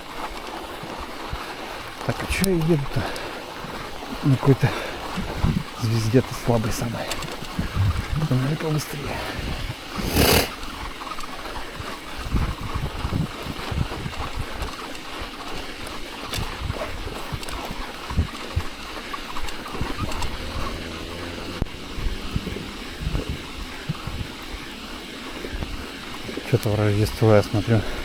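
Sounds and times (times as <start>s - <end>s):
tyres hissing on snow: 0.0s - 28.0s
wind buffeting microphone: 0.8s - 28.0s.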